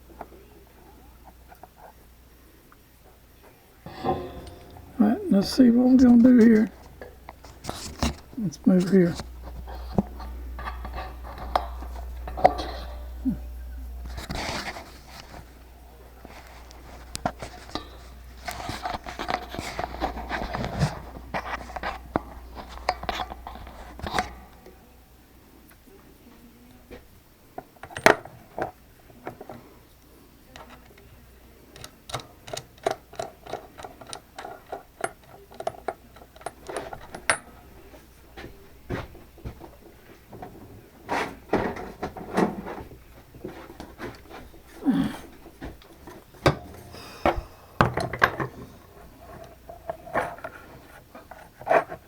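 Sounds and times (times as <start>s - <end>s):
tools clattering on workbench: 3.9s - 24.6s, 31.8s - 51.0s
low hum: 3.9s - 25.3s.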